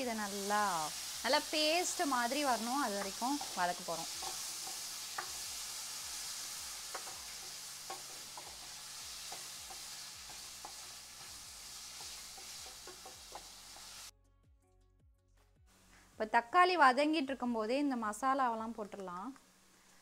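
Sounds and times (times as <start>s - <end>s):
food sizzling in hot oil: 0.0s - 14.1s.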